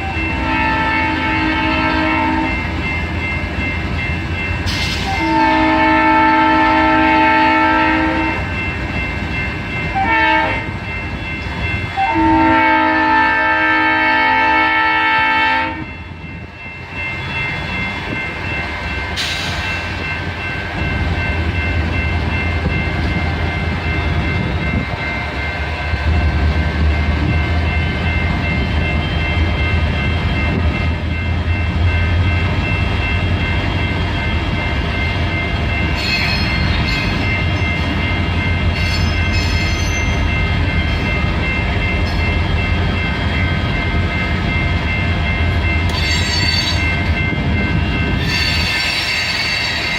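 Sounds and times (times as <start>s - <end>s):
train horn blast: 0.0s - 2.6s, 5.0s - 8.5s, 10.0s - 10.8s, 12.0s - 15.9s
diesel locomotive engine rumbling: 0.0s - 49.9s.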